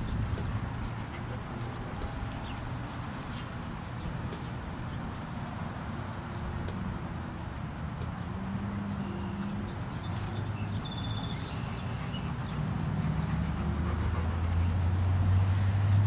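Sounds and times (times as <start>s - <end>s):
small birds chirping: 8.9s - 13.6s.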